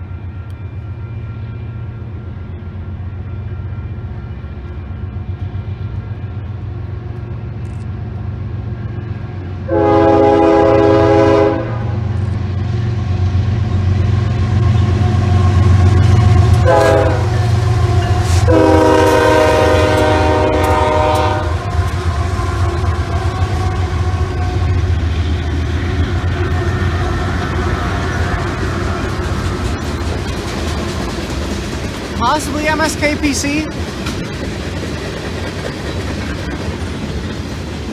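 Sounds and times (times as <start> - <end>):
diesel locomotives rumbling past: 0.0 - 37.9
train air horn blasts: 9.7 - 12.2, 15.2 - 25.0.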